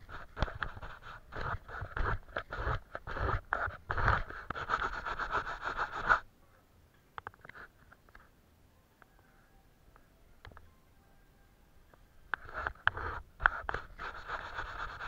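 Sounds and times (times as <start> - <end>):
paintbrush scrubbing on paper: 0.0 - 6.2, 12.4 - 15.0.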